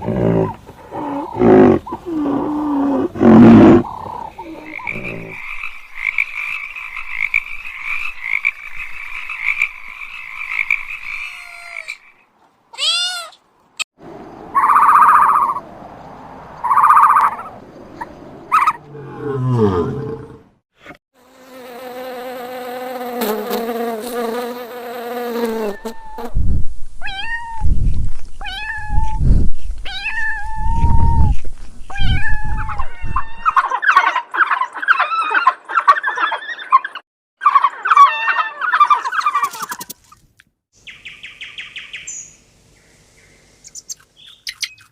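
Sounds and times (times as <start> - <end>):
animal calls and cries: 0.0 - 13.4, 14.4 - 20.4, 29.8 - 40.0, 43.6 - 44.9
frog croaking: 3.2 - 12.0, 14.5 - 15.6.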